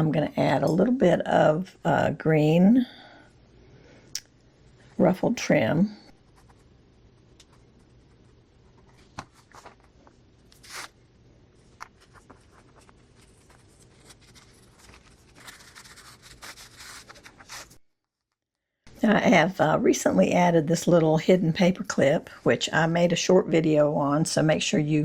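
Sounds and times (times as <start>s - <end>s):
rustling: 6.2s - 11.0s, 11.6s - 17.8s
paper ripping: 8.8s - 9.9s, 10.5s - 11.0s, 12.0s - 17.8s.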